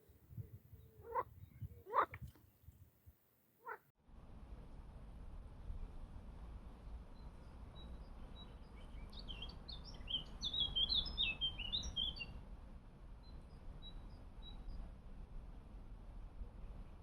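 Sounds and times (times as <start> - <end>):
songbird singing: 0.0 - 2.8, 7.1 - 12.4.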